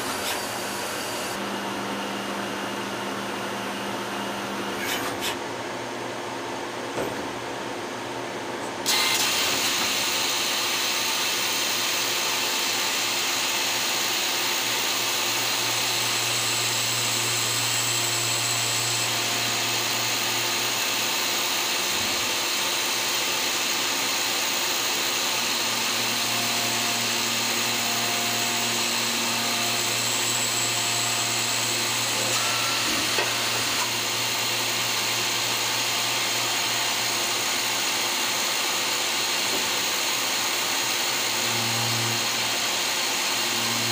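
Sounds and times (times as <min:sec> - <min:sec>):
lathe machining hiss: 0:08.9 - 0:43.9.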